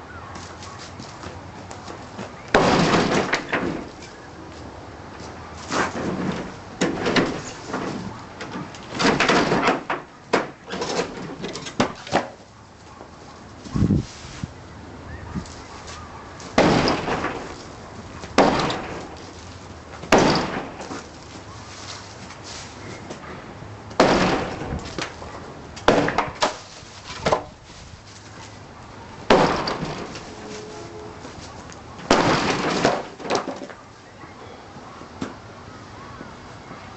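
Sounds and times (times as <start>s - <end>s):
old wood framing breaking: 1.9s - 4.2s, 5.6s - 12.4s, 16.4s - 21.4s, 23.9s - 25.2s, 25.8s - 27.6s, 29.2s - 30.5s, 31.4s - 33.8s
debris falling: 2.2s - 4.1s, 5.6s - 12.4s, 16.4s - 21.3s, 23.9s - 25.2s, 25.8s - 27.6s, 29.2s - 30.7s, 31.4s - 33.8s.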